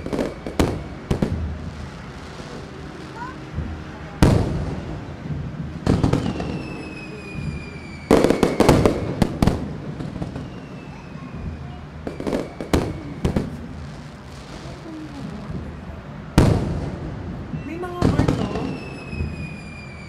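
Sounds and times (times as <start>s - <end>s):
fireworks bangs and crackling: 0.0s - 20.0s
falling whistle: 6.2s - 9.2s, 10.2s - 13.6s, 18.5s - 20.0s.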